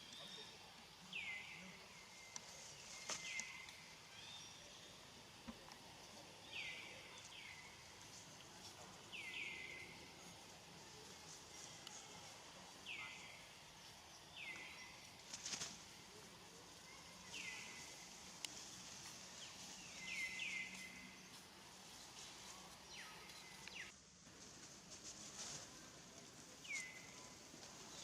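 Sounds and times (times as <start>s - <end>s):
bird chirping: 19.4s - 23.9s.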